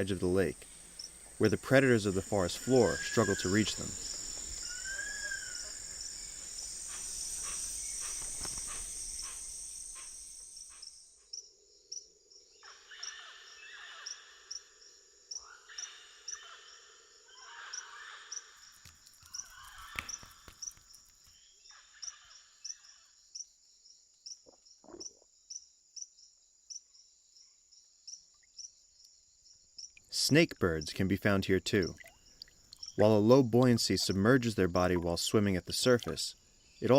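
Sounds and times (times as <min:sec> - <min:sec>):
insects buzzing: 0:00.0 - 0:12.6, 0:17.7 - 0:22.8, 0:28.9 - 0:36.9
insect chirping: 0:00.0 - 0:36.9.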